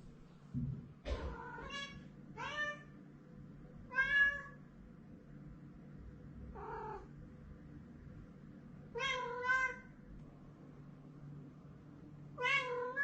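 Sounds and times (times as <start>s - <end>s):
cat meowing: 1.2s - 2.9s, 3.9s - 4.6s, 6.5s - 7.1s, 9.0s - 9.9s, 12.4s - 13.0s.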